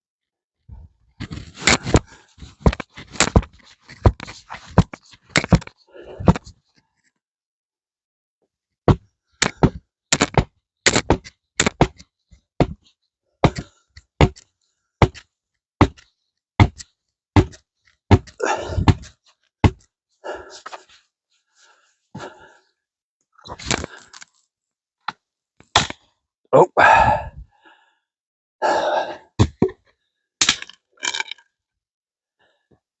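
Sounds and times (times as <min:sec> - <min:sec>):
rock pounding wooden stake: 0:08.9 - 0:12.0, 0:13.4 - 0:16.8, 0:17.4 - 0:19.9, 0:25.7 - 0:26.0, 0:29.4 - 0:29.8.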